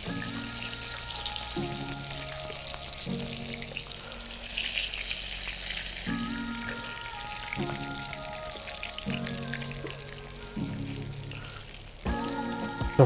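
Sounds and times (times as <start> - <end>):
vegetables sizzling in a frying pan: 0.0 - 12.6
background music with sustained chords: 0.0 - 13.0.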